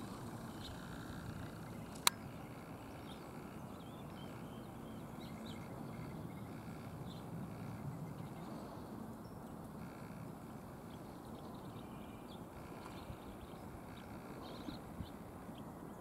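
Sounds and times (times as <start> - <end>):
low outdoor background noise: 0.0 - 16.0
small birds chirping: 0.0 - 16.0
sharp click: 1.9 - 2.2.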